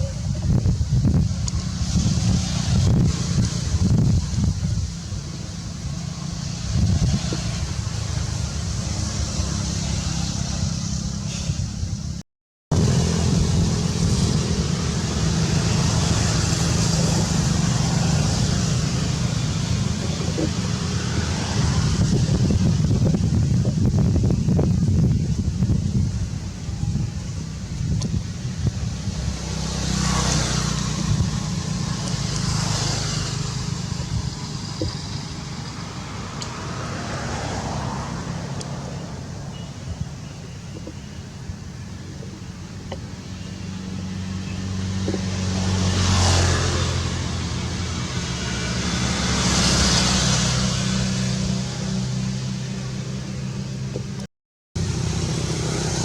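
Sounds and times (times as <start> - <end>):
low engine hum: 0.0 - 56.0
road vehicles passing: 0.0 - 56.0
hiss: 10.4 - 12.0.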